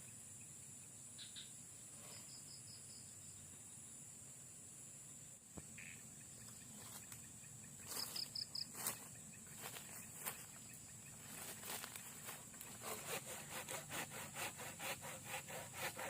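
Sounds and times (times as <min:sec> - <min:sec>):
insects trilling: 0:00.0 - 0:16.0
sharp scraping strokes: 0:11.4 - 0:16.0.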